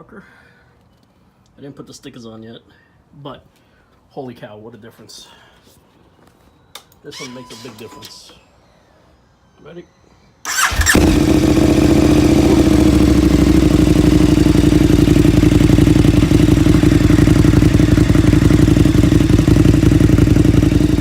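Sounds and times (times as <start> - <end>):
motorcycle engine idling: 10.5 - 21.0.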